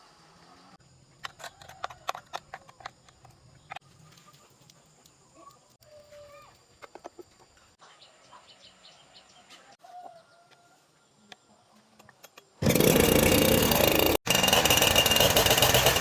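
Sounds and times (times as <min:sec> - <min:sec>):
chainsaw engine at high revs: 0:12.6 - 0:16.0.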